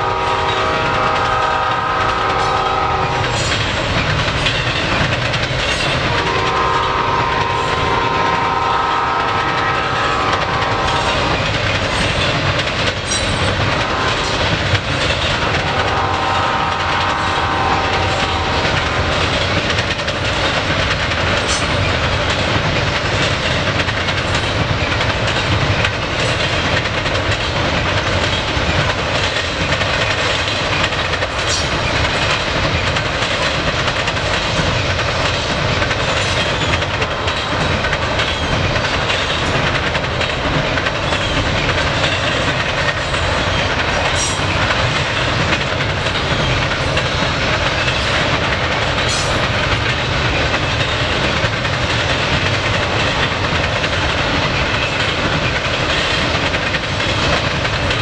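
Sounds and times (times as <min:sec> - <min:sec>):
locomotive horn: 0:00.0 - 0:03.4, 0:06.1 - 0:11.3, 0:13.8 - 0:14.4, 0:15.4 - 0:19.4
freight train rumbling and rattling: 0:00.0 - 0:58.0.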